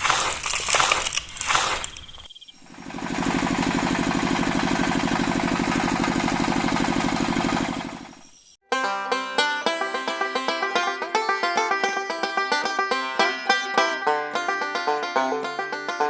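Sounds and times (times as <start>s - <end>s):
crunching and scraping: 0.0s - 2.4s
small machine running: 1.6s - 8.6s.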